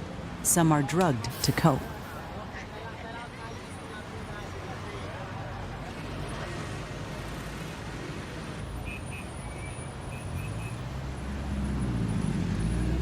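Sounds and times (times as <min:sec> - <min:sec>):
street traffic din: 0:00.0 - 0:13.0
vehicle engine: 0:10.8 - 0:13.0.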